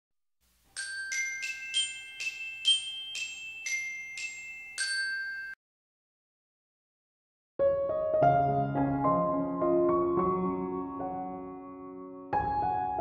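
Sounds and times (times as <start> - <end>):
bell jingle melody: 0.7 - 5.6.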